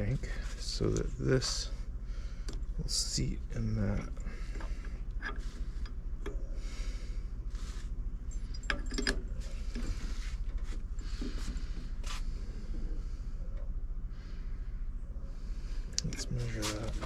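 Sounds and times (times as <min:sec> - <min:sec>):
steady low hum: 0:00.0 - 0:17.0
rubbing and scraping: 0:16.3 - 0:17.0.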